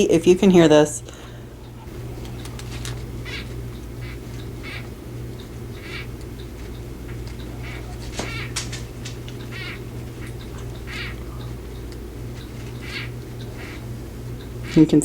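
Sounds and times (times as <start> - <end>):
steady low hum: 0.0 - 15.0
gecko giving short calls: 1.8 - 4.8, 7.5 - 11.6, 12.7 - 13.9.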